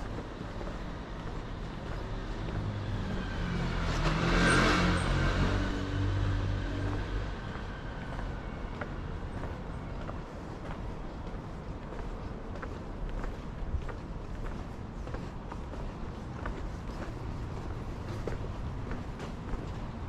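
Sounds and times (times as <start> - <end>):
motor vehicle passing by: 0.6 - 9.5.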